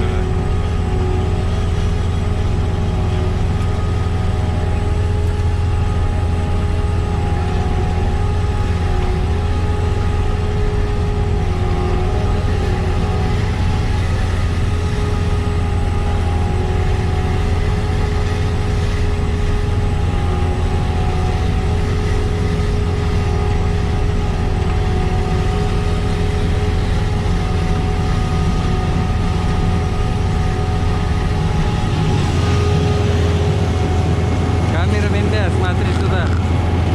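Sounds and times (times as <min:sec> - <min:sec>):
constant machinery whine: 0:00.0 - 0:36.9
harvester diesel engine drone: 0:00.0 - 0:36.9.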